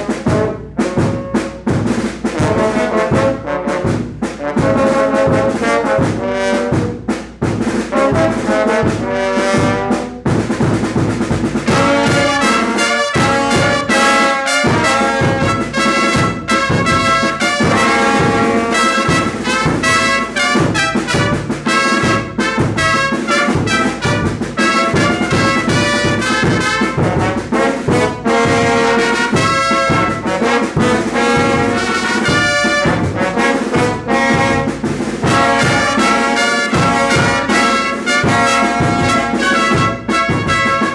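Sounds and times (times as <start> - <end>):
brass band playing: 0.0 - 40.9
trumpets and trombones melody: 0.0 - 40.9
steady pulsing beat: 14.8 - 36.1.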